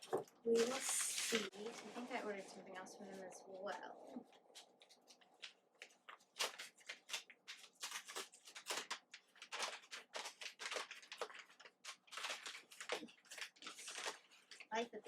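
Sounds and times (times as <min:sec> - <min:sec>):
packaging rustling and crinkling: 0:00.0 - 0:02.2, 0:04.2 - 0:15.0.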